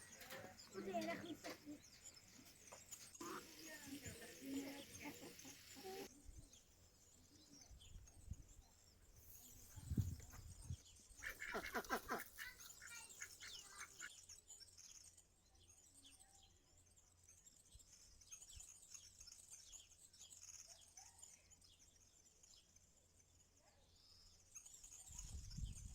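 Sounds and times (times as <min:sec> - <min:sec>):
birds chirping: 0:00.0 - 0:25.9.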